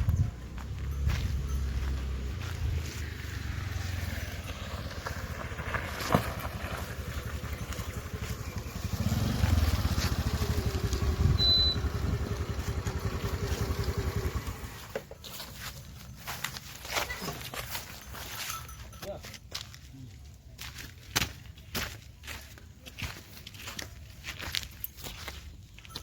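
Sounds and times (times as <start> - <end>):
engine whine: 0.0 - 15.2
diesel engine low pulse: 6.4 - 14.9.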